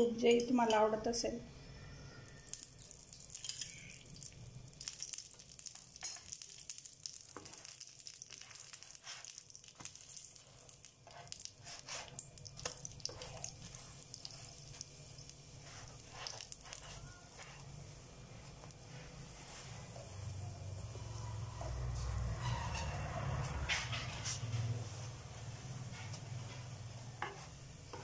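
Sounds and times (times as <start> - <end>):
ghee sizzling with little pops: 2.1 - 22.3, 23.9 - 28.0.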